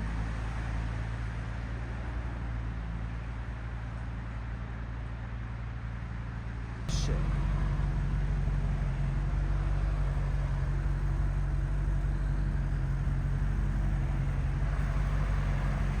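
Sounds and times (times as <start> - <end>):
car engine idling: 6.9 - 16.0.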